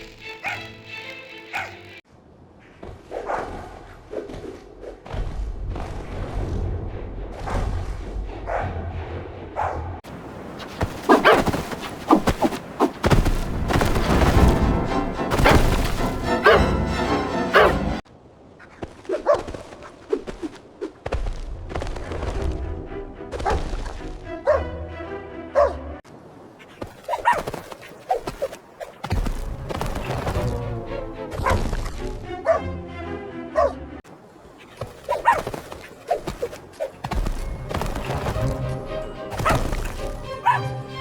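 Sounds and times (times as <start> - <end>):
dog barking and yelping: 1.5 - 1.8, 11.0 - 11.8, 16.4 - 16.8, 17.5 - 17.9, 25.6 - 25.8, 27.0 - 27.6, 32.4 - 32.6, 34.9 - 35.7, 40.4 - 40.8.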